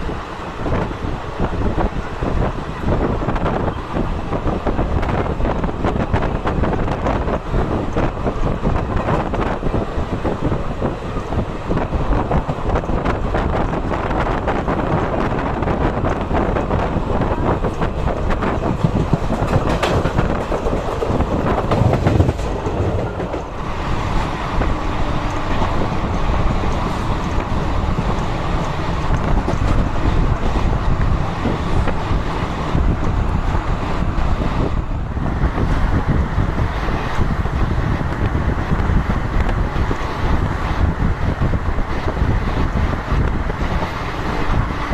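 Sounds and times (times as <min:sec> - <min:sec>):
train coaches rumbling: 0:00.0 - 0:44.9
wheel clicks over rails: 0:17.6 - 0:23.6.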